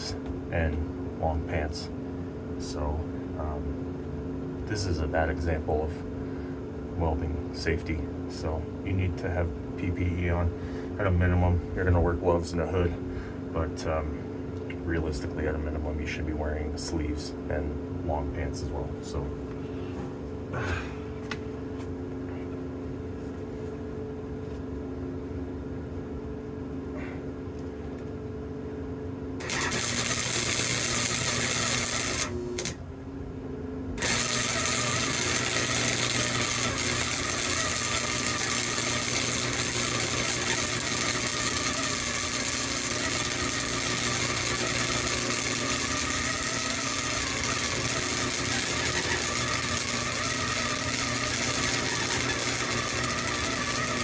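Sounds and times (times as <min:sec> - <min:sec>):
welder humming: 0:00.0 - 0:01.9, 0:29.3 - 0:33.2, 0:33.9 - 0:54.0
welding arc crackling sizzle: 0:29.4 - 0:32.8, 0:34.0 - 0:54.0.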